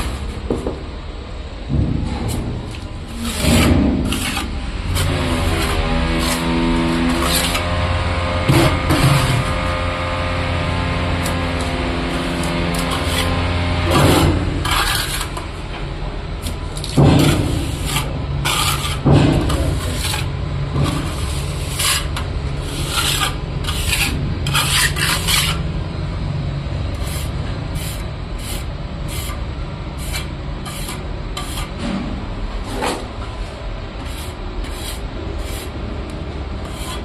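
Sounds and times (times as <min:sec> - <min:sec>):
steady low hum: 0:00.0 - 0:37.0
scraping strokes: 0:03.1 - 0:07.7, 0:11.2 - 0:15.5, 0:16.9 - 0:25.6, 0:30.0 - 0:32.0, 0:32.6 - 0:35.8, 0:36.6 - 0:37.0.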